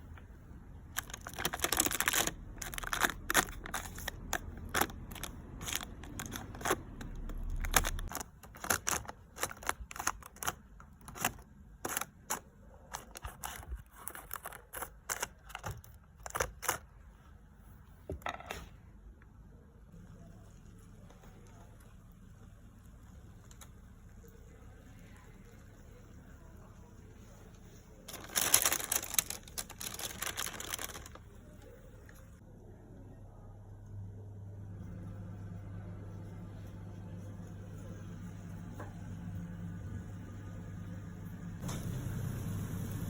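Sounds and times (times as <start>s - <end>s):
rustling: 27.5s - 32.4s.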